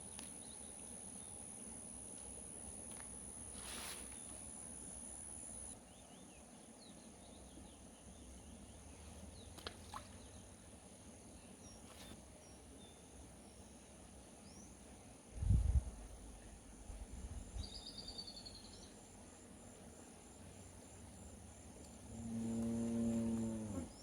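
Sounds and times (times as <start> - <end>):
insects trilling: 0.0 - 5.8.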